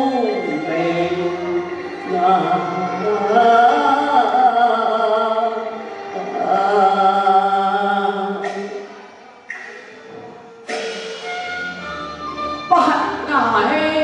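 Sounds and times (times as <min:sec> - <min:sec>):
opera singing with vibrato: 0:00.0 - 0:09.4, 0:12.6 - 0:14.0
crash-like strike: 0:10.7 - 0:11.8.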